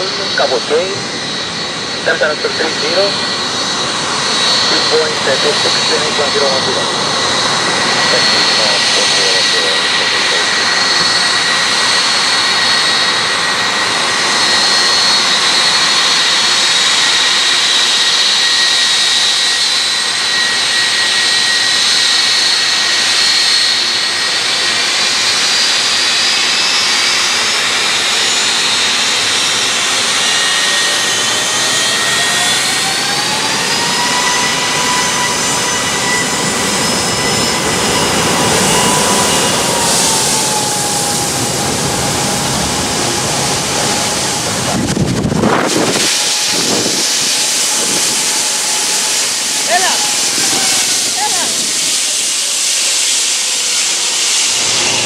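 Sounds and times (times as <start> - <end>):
high engine whine rising: 0.0 - 55.0
jet engines running loud: 0.0 - 55.0.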